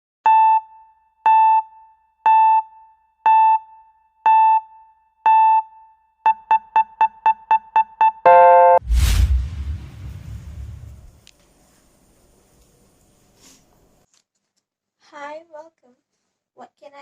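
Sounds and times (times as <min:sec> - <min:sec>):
electronic beeps: 0:06.3 - 0:08.8.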